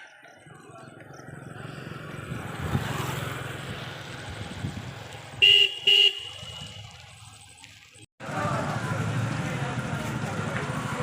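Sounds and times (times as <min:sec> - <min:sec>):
vehicle passing on road: 0:00.2 - 0:11.0
car horn honks: 0:05.4 - 0:06.9.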